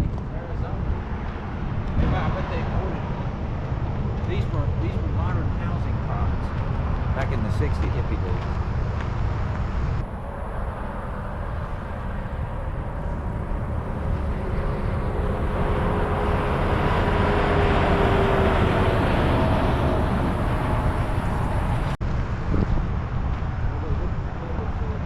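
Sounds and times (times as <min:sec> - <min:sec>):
open car driving: 0:00.0 - 0:25.0.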